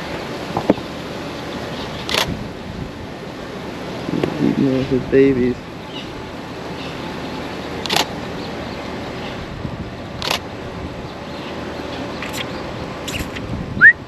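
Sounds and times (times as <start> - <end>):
outdoor background noise: 0.0 - 14.0
camera shutter clicks: 2.1 - 2.3, 7.8 - 8.1, 10.2 - 10.4.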